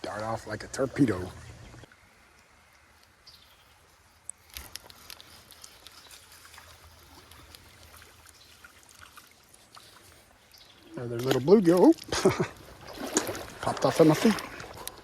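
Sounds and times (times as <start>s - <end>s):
creek water trickling: 0.0s - 15.0s
small splashes: 4.0s - 15.0s.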